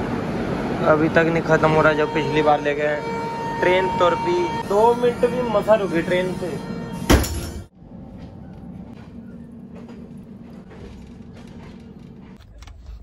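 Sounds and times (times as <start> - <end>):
train rumble inside coach: 8.0 - 13.0.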